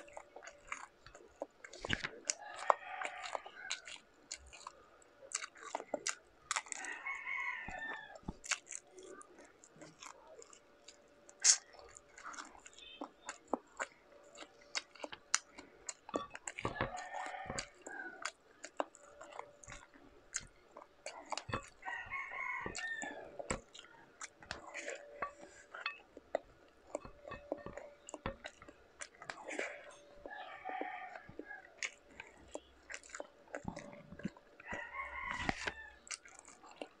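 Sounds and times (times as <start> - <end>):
chewing and lip-smacking: 0.0 - 37.0
rooster crowing: 2.4 - 3.9, 6.7 - 8.2, 16.6 - 18.2, 21.8 - 23.4, 30.2 - 31.8, 34.6 - 36.1.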